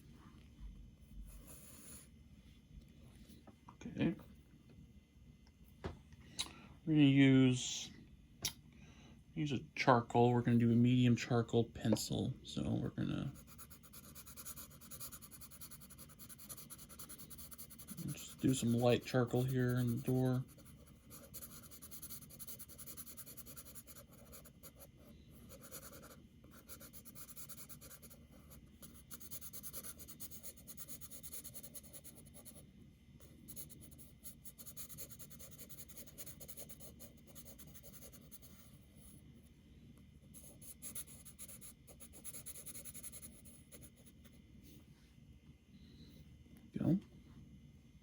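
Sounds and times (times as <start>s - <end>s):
pencil shading on paper: 1.3s - 2.1s, 13.3s - 32.6s, 33.5s - 38.6s, 40.4s - 44.0s.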